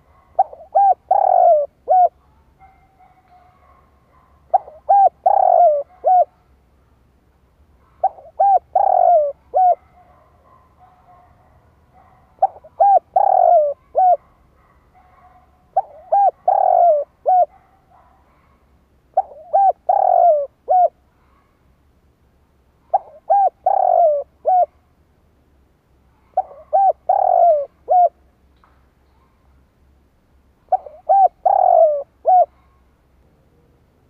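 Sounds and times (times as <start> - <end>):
dove cooing: 0.0 - 2.2, 4.5 - 6.4, 7.9 - 10.3, 12.4 - 14.3, 15.0 - 17.7, 19.1 - 21.4, 22.8 - 24.8, 26.2 - 28.2, 30.7 - 32.8.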